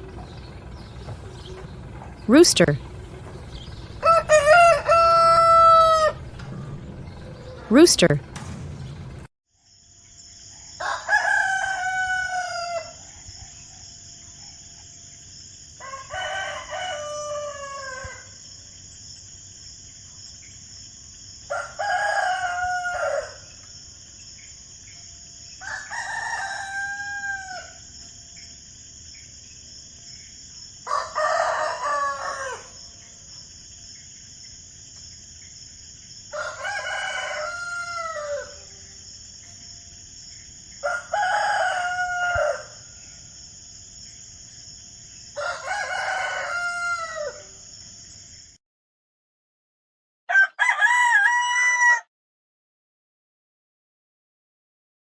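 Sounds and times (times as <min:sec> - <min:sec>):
rooster crowing: 0:00.1 - 0:08.2, 0:10.8 - 0:13.1, 0:15.8 - 0:18.4, 0:21.5 - 0:23.5, 0:25.6 - 0:27.8, 0:30.9 - 0:32.8, 0:36.3 - 0:38.9, 0:40.8 - 0:43.1, 0:45.4 - 0:47.6, 0:50.3 - 0:52.1.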